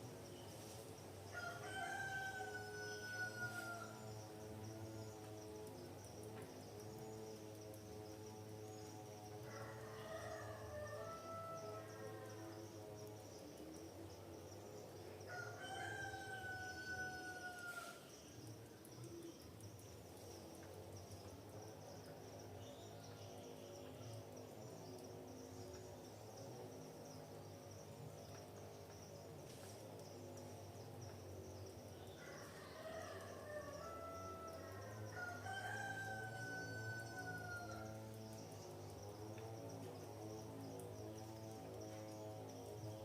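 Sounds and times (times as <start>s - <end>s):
faint rooster crowing: 1.3s - 4.2s, 9.4s - 12.5s, 15.3s - 18.2s, 32.1s - 38.1s.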